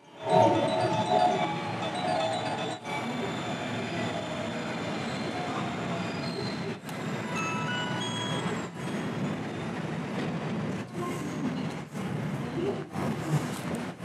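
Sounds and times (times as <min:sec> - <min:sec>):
train rumbling over rails: 0:00.0 - 0:14.0
high brake squeals: 0:03.0 - 0:06.8.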